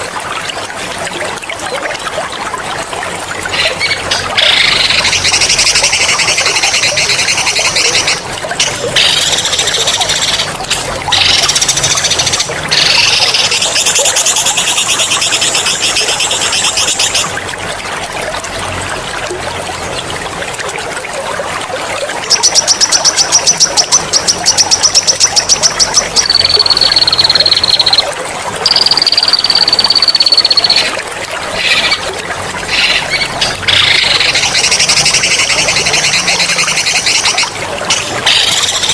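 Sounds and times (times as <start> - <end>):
trickling water: 0.0 - 38.9
songbirds trilling: 22.3 - 31.0, 32.7 - 38.9.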